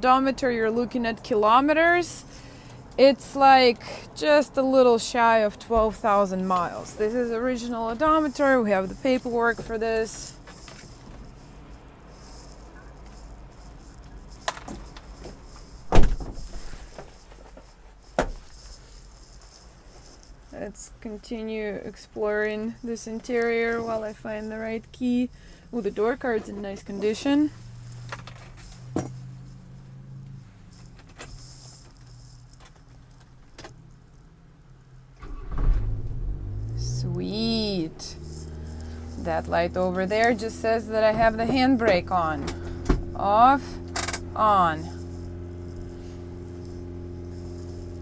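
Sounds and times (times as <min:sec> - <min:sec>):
car engine starting and idling: 0:00.1 - 0:17.0, 0:21.6 - 0:48.0
sharp click in truck cab: 0:14.4 - 0:17.0, 0:18.2 - 0:18.6
heavy thump: 0:15.8 - 0:17.1, 0:35.3 - 0:37.0, 0:42.4 - 0:43.1.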